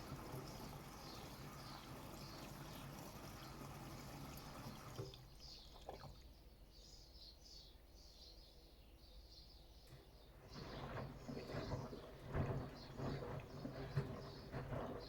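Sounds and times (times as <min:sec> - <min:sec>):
water sloshing in washing machine: 0:00.0 - 0:06.3, 0:09.9 - 0:15.0.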